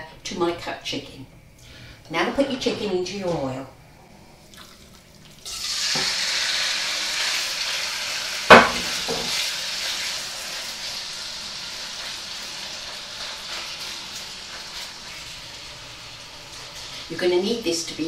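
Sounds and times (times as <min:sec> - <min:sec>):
chicken sizzling in hot oil: 0:05.3 - 0:18.0
sharp knock: 0:08.5 - 0:09.3.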